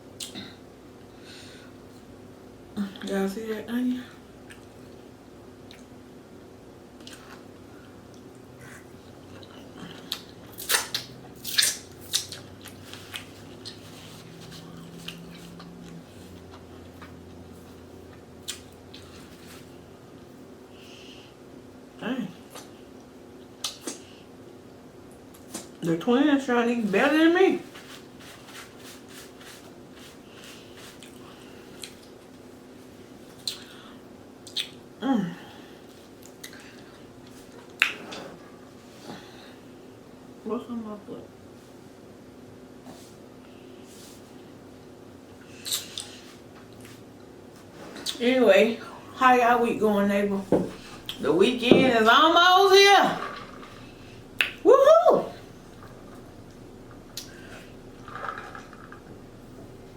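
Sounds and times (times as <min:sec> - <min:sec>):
faint room hum: 0:00.0 - 0:59.9
person chewing: 0:09.2 - 0:19.3
wet mouth smacks: 0:10.1 - 0:12.5, 0:23.6 - 0:24.0, 0:33.4 - 0:33.7, 0:34.4 - 0:34.8.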